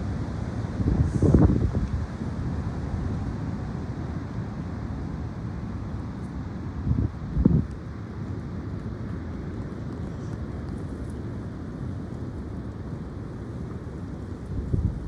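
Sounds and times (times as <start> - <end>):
high wind rumble: 0.0 - 3.3, 6.8 - 7.7, 12.9 - 15.0
wind gusts buffeting microphone: 0.8 - 2.2, 13.0 - 15.0.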